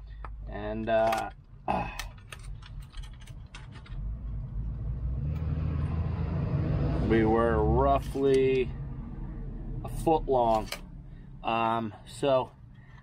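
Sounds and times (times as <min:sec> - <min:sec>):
light clicks and rattles: 0:00.2 - 0:04.1
low engine rumble: 0:01.5 - 0:13.0.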